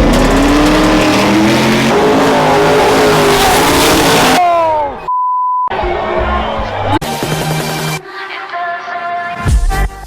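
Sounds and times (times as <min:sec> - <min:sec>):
engine revving high: 0:00.0 - 0:04.5.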